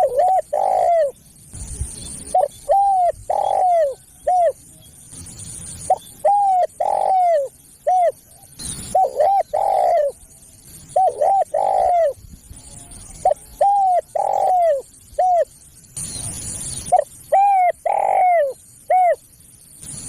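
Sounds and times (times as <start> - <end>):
dove cooing: 0.0 - 1.2, 2.2 - 4.6, 5.8 - 10.2, 10.9 - 15.5, 16.9 - 19.2.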